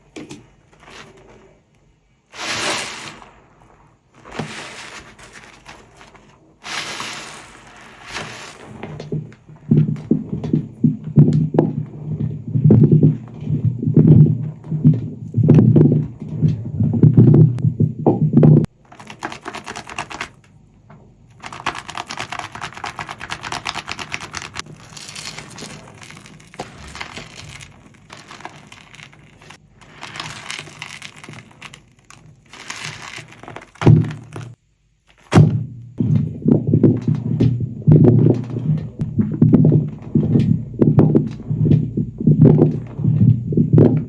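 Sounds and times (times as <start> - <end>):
foam crackling and fizzing: 0.0 - 17.6, 18.7 - 20.6, 21.2 - 44.0
soapy sponge squelching: 2.3 - 20.4, 21.3 - 44.0.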